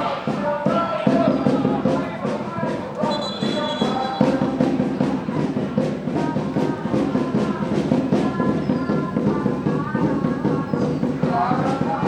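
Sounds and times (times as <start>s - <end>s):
brass and drums playing: 0.0s - 8.6s.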